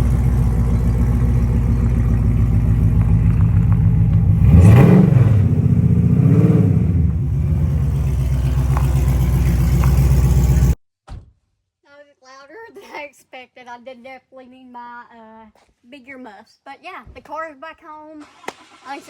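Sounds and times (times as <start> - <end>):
car engine idling and revving: 0.0 - 10.8.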